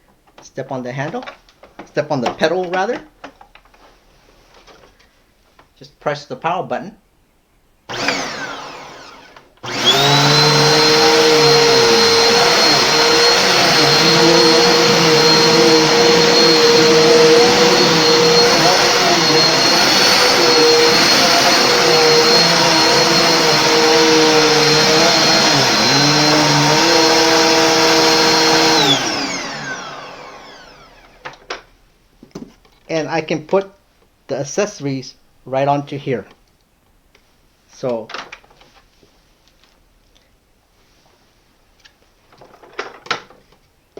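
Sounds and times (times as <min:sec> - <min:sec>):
vacuum cleaner motor whining: 0:07.9 - 0:31.4.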